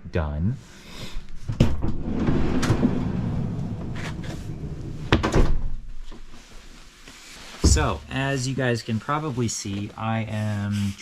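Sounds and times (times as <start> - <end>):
low rolling rumble: 1.8 - 5.9, 7.6 - 8.9
door knocks: 7.6 - 8.0.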